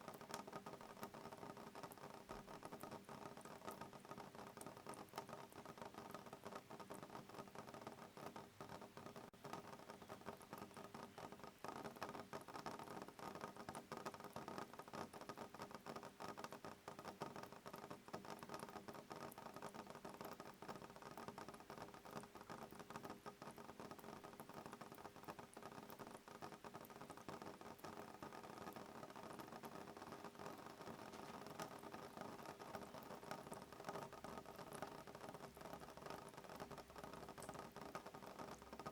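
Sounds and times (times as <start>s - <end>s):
rain pattering on window: 0.0s - 38.9s.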